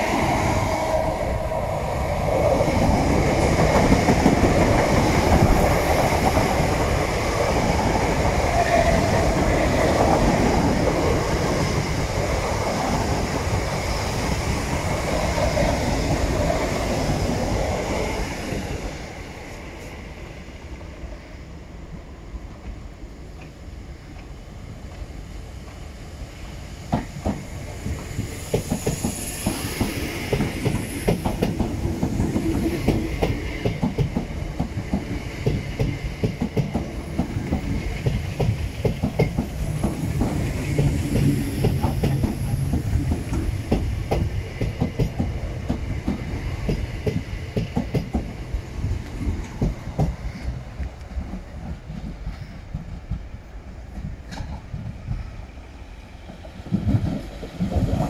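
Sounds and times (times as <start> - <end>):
low train rumble: 0.0 - 58.0
train wheels clattering: 26.9 - 48.4, 49.0 - 55.2.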